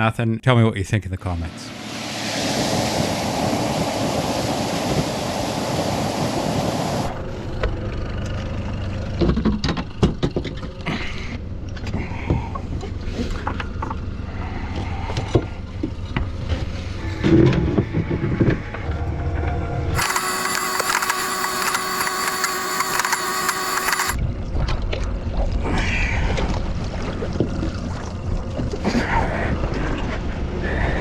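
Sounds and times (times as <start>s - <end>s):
water noise: 1.5s - 7.1s
wind: 1.5s - 7.3s
boat motor running: 20.0s - 24.2s.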